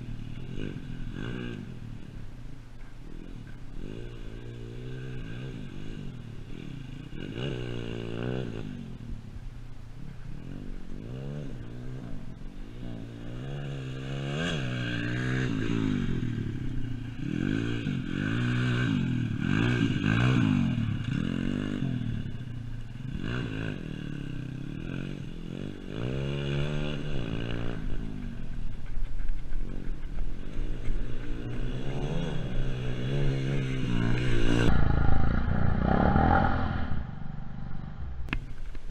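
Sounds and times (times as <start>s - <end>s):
pit bike engine revving: 10.3s - 38.4s.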